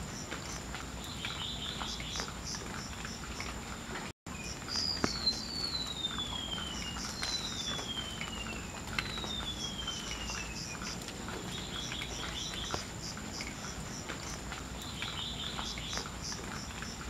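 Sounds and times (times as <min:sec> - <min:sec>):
bird singing: 0:00.4 - 0:03.5, 0:04.3 - 0:17.0.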